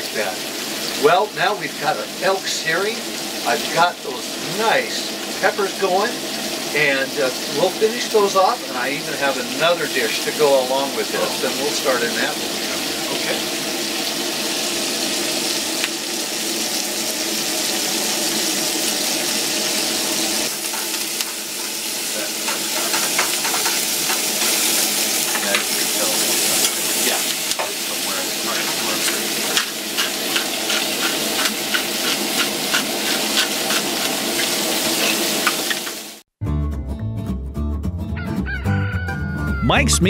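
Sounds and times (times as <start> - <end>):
food sizzling in skillets: 0.0 - 36.3
utensil scraping pan: 20.5 - 27.8, 28.4 - 36.0.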